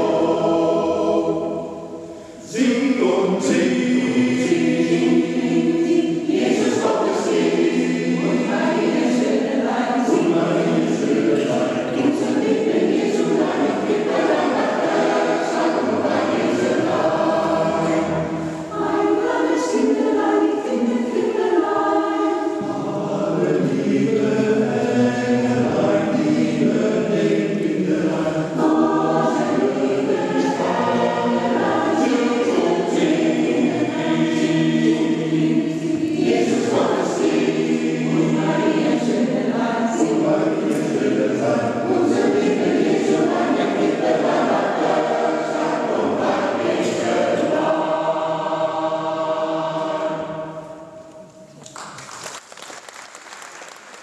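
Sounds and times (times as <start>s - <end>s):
choir singing: 0.0s - 51.5s
breaths between phrases: 2.0s - 2.4s.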